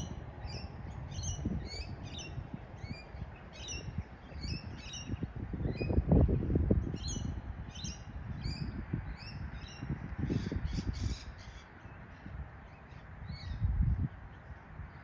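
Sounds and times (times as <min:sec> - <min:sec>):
harsh rasping bird calls: 0:07.0 - 0:13.6.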